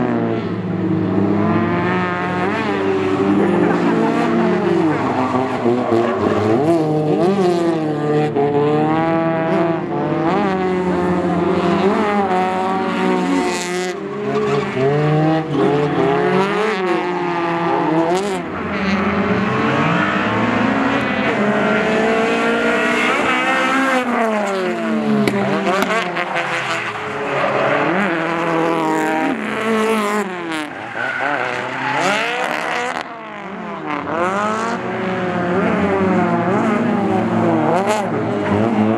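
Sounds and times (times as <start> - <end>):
car engines revving: 0.0 - 38.9
tire squeal and skidding: 2.4 - 6.8, 14.2 - 21.5, 25.8 - 28.7, 29.3 - 33.1.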